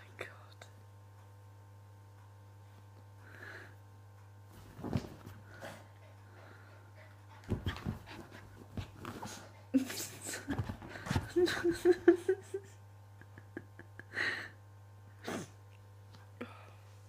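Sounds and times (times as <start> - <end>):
puppy scuffling and knocks: 4.5 - 5.4, 7.4 - 9.3.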